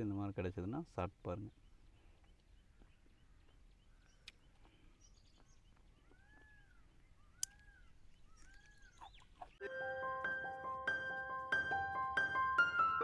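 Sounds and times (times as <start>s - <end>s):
short bird calls: 1.6s - 9.7s
sharp clicks: 7.4s - 7.7s.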